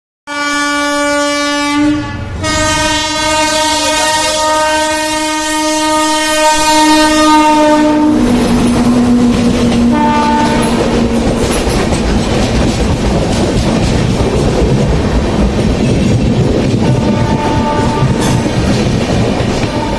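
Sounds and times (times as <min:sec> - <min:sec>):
locomotive horn blasts: 0:00.3 - 0:11.2, 0:16.8 - 0:18.6, 0:19.6 - 0:19.9
train coaches clattering past: 0:02.2 - 0:19.9.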